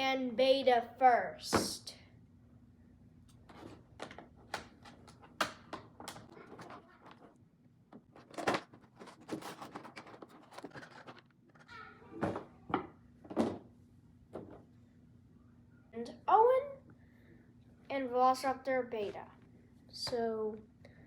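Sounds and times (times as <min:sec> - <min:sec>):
packaging clicks and rustles: 0:08.0 - 0:11.7.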